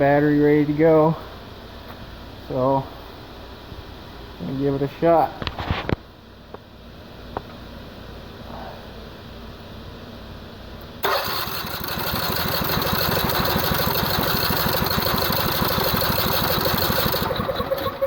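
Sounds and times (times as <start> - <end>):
engine cranked by electric starter: 10.8 - 18.0.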